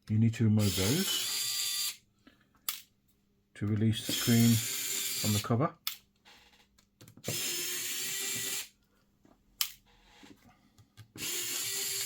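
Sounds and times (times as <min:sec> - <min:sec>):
electric screwdriver running: 0:00.6 - 0:02.0, 0:04.0 - 0:05.4, 0:07.2 - 0:08.7, 0:11.2 - 0:12.0.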